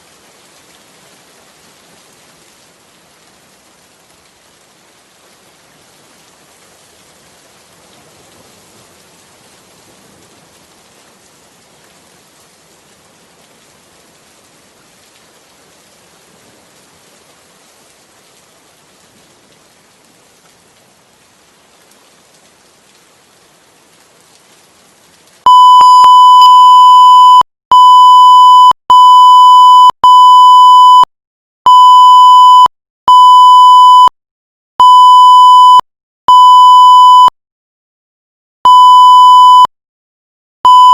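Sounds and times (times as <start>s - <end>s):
soft rain hiss: 0.0s - 25.4s
high electronic beeps: 25.5s - 28.8s.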